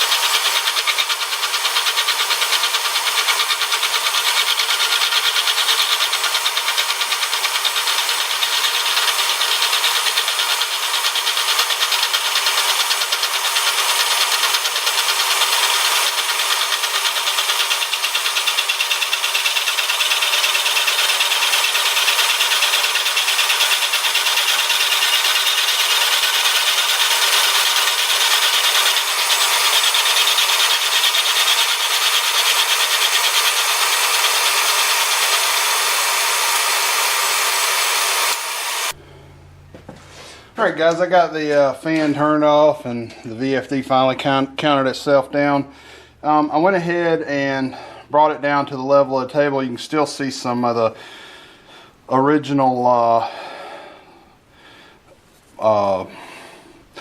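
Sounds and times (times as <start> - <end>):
milling machine cutting steel: 0.0 - 39.0
fan running: 0.0 - 57.0.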